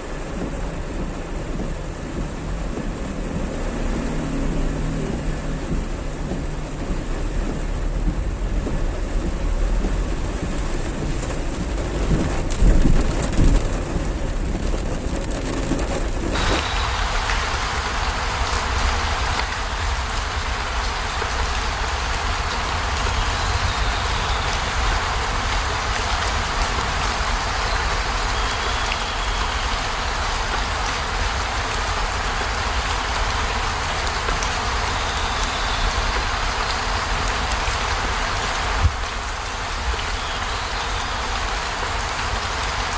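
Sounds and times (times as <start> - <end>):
heavy rain pouring: 0.0 - 42.9.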